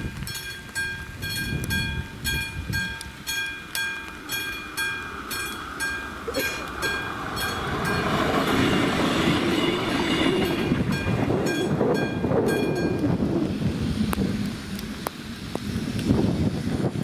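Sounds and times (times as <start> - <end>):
crossing warning bell: 0.0 - 13.2
train wheels rumbling on rails: 0.0 - 17.0.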